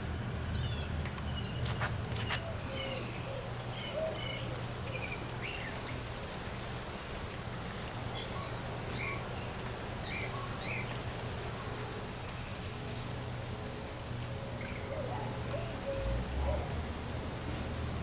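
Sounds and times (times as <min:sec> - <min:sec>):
low hum and hiss: 0:00.0 - 0:18.0
birds chirping: 0:00.4 - 0:06.0.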